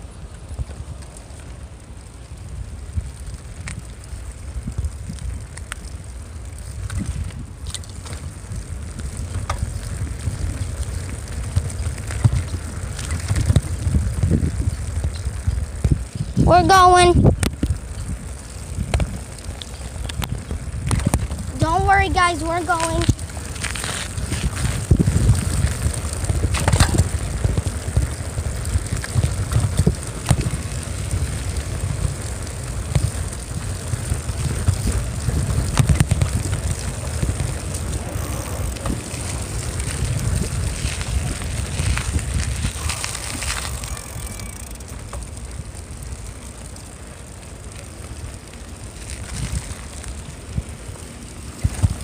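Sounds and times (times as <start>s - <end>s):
bicycle clicks and rattles: 0.0s - 52.0s
wind buffeting microphone: 0.0s - 52.0s.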